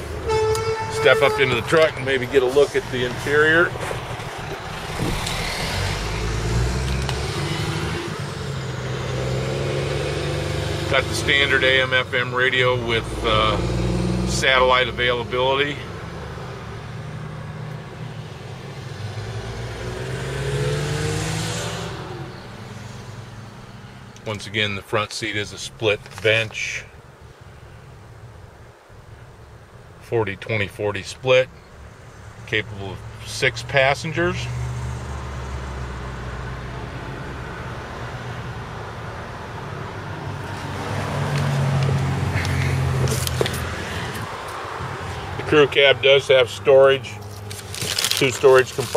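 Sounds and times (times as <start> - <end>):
vehicle engine humming: 0.0 - 48.9
vehicle engine running: 40.4 - 48.9.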